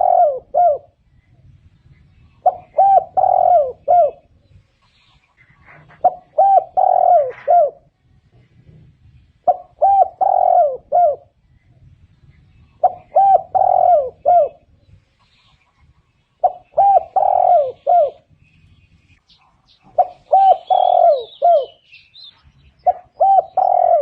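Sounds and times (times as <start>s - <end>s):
dove cooing: 0.0s - 1.0s, 2.4s - 4.4s, 5.4s - 8.0s, 9.4s - 11.4s, 12.8s - 14.8s, 16.4s - 18.3s, 19.9s - 21.8s, 22.8s - 24.0s.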